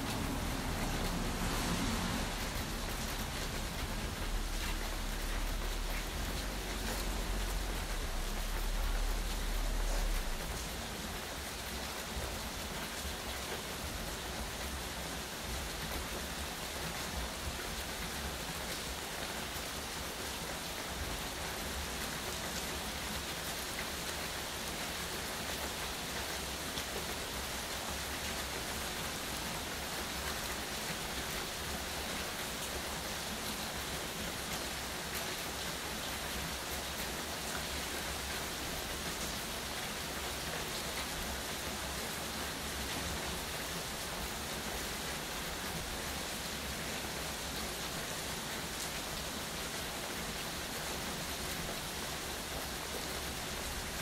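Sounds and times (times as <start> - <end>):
rain pattering: 0.0 - 54.0
low rumble: 0.1 - 11.0.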